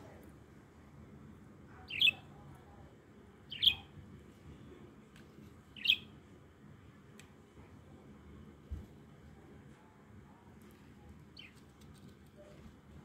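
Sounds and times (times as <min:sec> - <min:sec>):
pet bird chirping: 0:01.8 - 0:02.4, 0:03.4 - 0:04.0, 0:05.7 - 0:06.2, 0:11.3 - 0:11.7.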